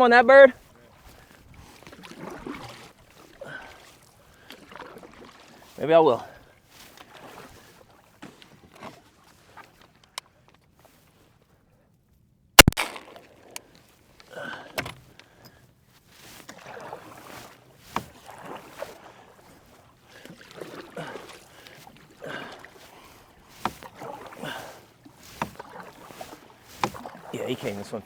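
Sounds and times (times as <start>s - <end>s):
splashing through shallow water: 0.0s - 11.3s, 12.6s - 28.0s
sharp knock: 12.6s - 12.9s.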